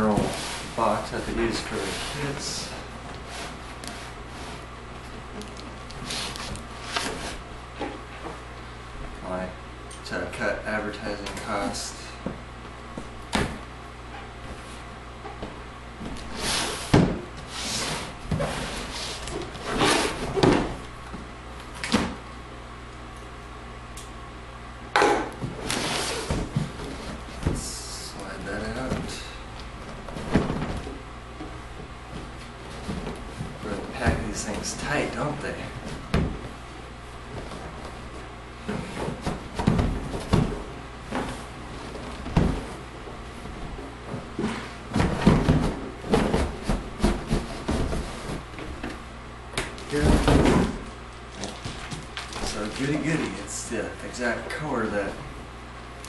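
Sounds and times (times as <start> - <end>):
low steady hum: 0.0 - 56.0
cardboard scraping and rubbing: 0.1 - 2.5, 6.0 - 7.4, 16.2 - 20.6, 25.6 - 27.6, 44.3 - 48.8.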